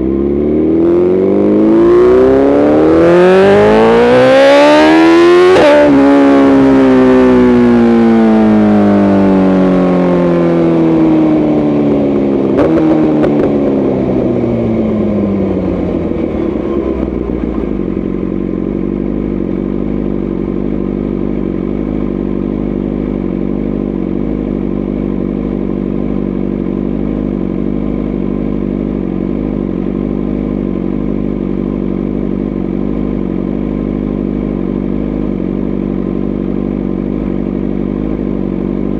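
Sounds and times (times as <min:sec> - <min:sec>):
motorcycle engine winding down: 0:00.0 - 0:25.6.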